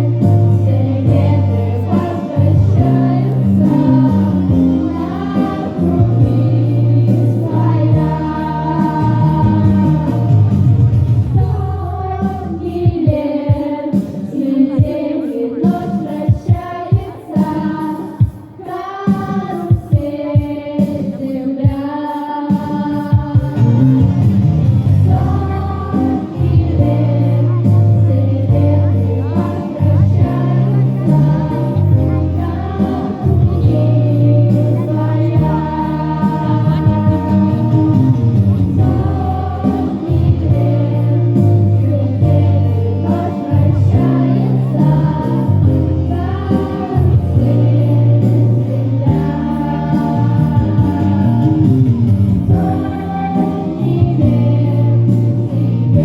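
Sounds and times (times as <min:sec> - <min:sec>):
girls singing in unison: 0:00.0 - 0:10.6, 0:11.3 - 0:23.9, 0:25.0 - 0:51.9, 0:52.5 - 0:56.0
backing track with beat and bass: 0:00.0 - 0:56.0.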